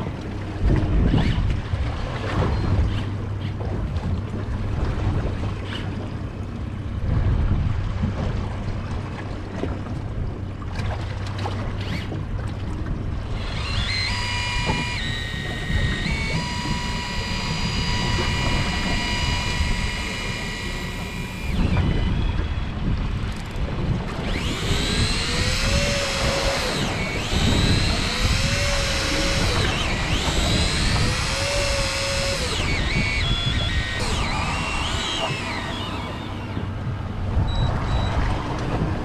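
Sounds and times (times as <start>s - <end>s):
small motor whining: 0.0s - 3.6s, 11.2s - 38.4s.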